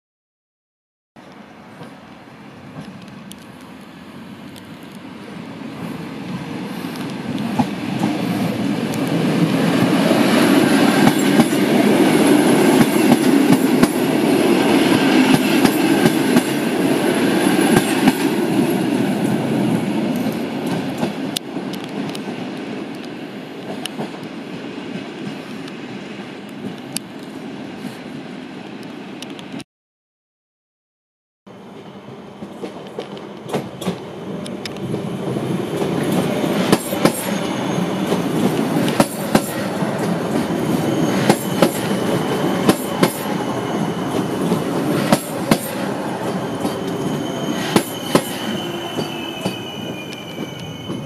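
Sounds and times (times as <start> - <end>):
electric train passing: 1.2 - 29.6, 31.5 - 51.0.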